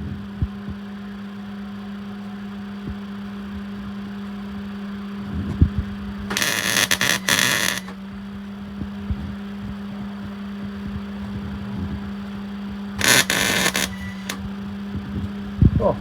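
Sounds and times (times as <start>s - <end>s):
steady hum: 4.5s - 16.0s
welding arc crackling: 6.3s - 8.0s, 13.0s - 14.4s.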